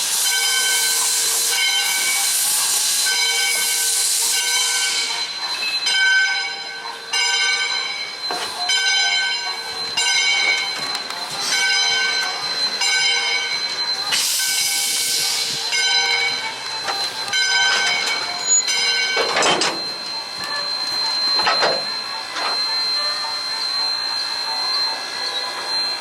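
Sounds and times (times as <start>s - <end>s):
steam hiss: 0.0s - 5.8s, 13.6s - 17.3s
steam locomotive bell ringing: 0.0s - 26.0s.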